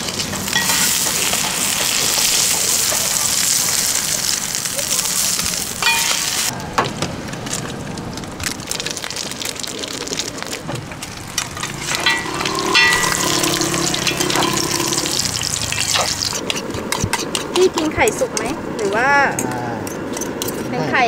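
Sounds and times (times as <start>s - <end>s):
omelet sizzling on a griddle: 0.0s - 6.5s, 8.4s - 17.9s
metal clinks of spatula and bowls: 5.8s - 6.3s, 11.9s - 15.1s.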